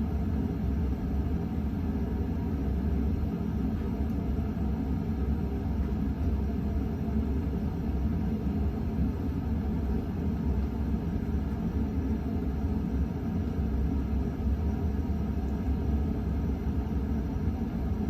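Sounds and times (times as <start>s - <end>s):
ceiling fan running: 0.0s - 18.0s.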